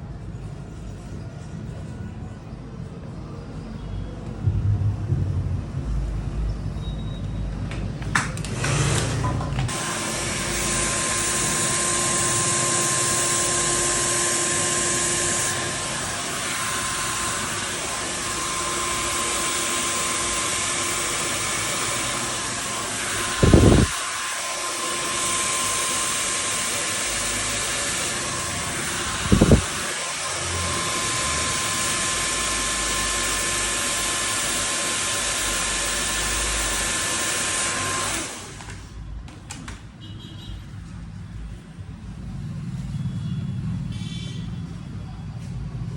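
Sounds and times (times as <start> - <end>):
loud thumps: 4.4 - 8.8
hair dryer blowing: 8.0 - 39.8.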